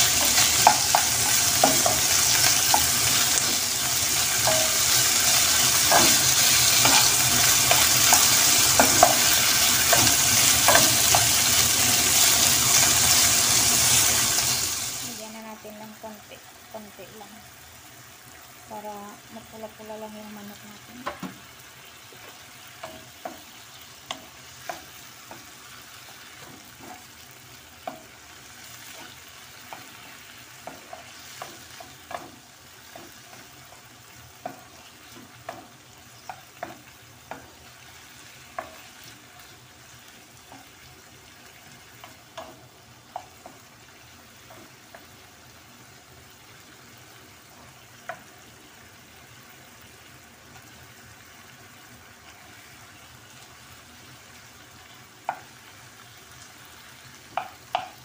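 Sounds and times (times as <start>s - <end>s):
spatula tapping and scraping pan: 0.0s - 13.2s, 21.0s - 21.5s, 22.1s - 45.3s, 47.5s - 48.4s, 55.2s - 55.6s, 57.2s - 58.0s
chicken sizzling in a pan: 0.0s - 58.0s.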